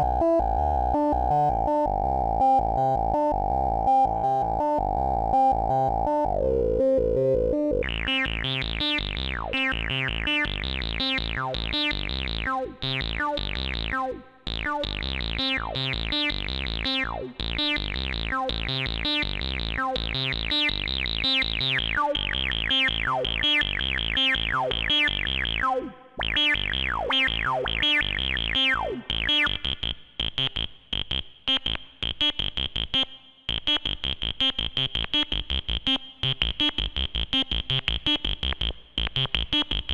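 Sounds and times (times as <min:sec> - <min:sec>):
synthesizer sequenced sweeping notes: 0:00.0 - 0:39.9.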